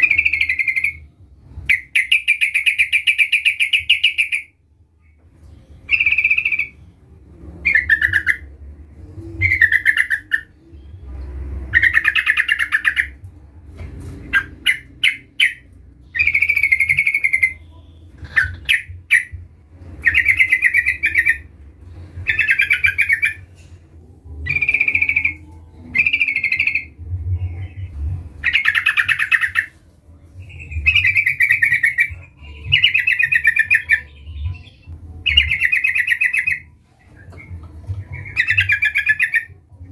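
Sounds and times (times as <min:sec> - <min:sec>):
bird singing chirpy phrases: 0:09.4 - 0:11.0, 0:30.4 - 0:39.6.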